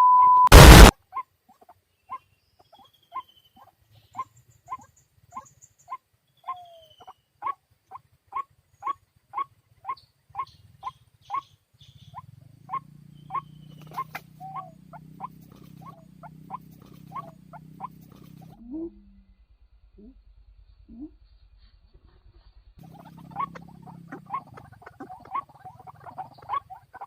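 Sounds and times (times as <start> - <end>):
waterhen calling: 8.3 - 18.9, 22.8 - 27.0
low steady hum: 12.9 - 26.5.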